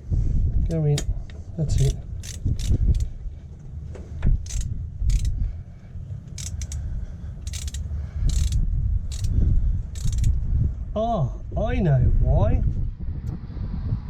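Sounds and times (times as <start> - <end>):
ratchet wrench clicking: 1.7 - 3.2, 4.4 - 5.4, 6.2 - 10.4.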